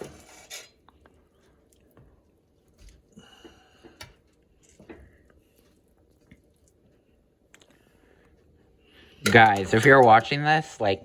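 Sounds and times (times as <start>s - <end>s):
utensils and dishes handled: 9.2s - 10.7s.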